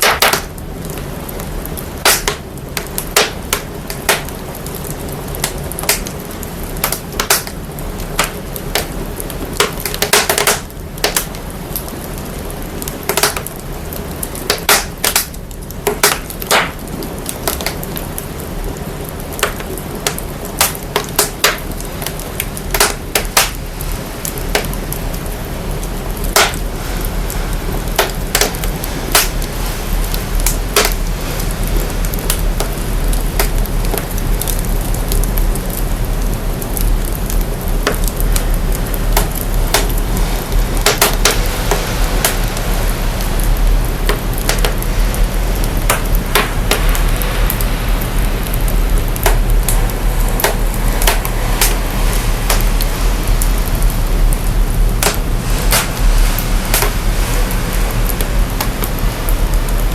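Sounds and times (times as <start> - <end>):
fire crackling and popping: 0.0 - 59.9
deep low rumble: 26.0 - 59.9.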